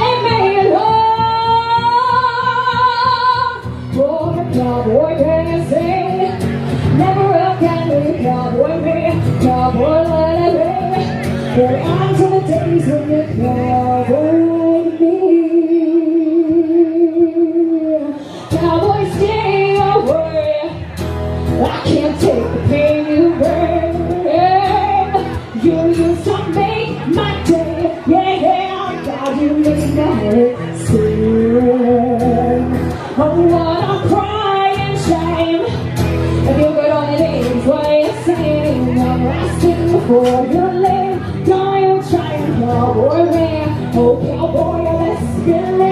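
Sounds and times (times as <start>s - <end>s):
live band playing: 0.0s - 15.0s, 18.2s - 45.9s
person singing: 0.0s - 45.9s.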